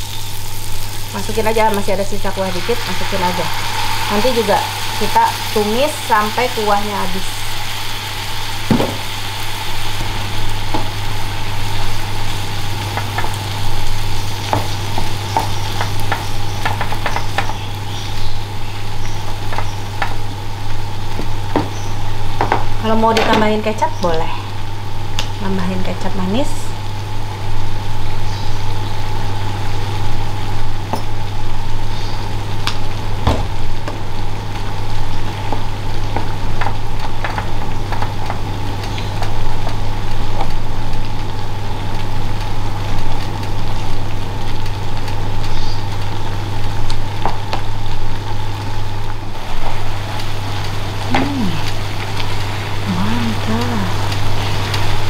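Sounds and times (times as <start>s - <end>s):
meat sizzling in a pan: 0.0s - 25.7s, 26.4s - 55.0s
steady low hum: 0.0s - 55.0s.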